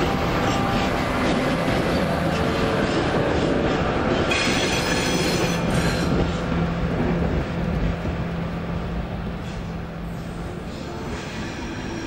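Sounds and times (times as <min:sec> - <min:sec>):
freight wagons rolling on rails: 0:00.0 - 0:08.4
diesel locomotive drone: 0:00.0 - 0:12.0
high wheel squeal: 0:04.2 - 0:06.4.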